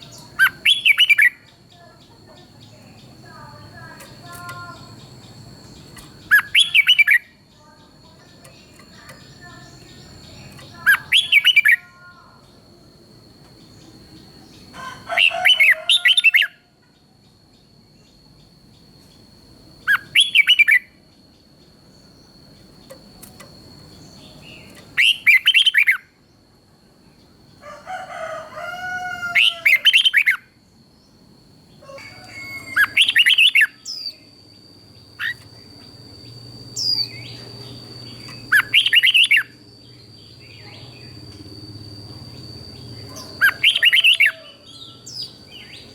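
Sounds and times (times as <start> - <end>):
bird whistled song: 0.0 - 1.6, 4.0 - 7.4, 8.4 - 11.8, 19.8 - 21.0, 23.9 - 26.2, 29.4 - 30.5, 32.2 - 34.3, 35.0 - 45.9.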